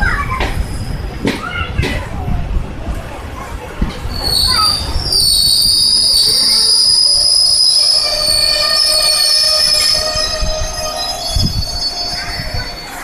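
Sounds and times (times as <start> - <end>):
train wheels squealing on rails: 0.0 - 1.8, 4.0 - 13.0
lower squeal: 4.1 - 13.0.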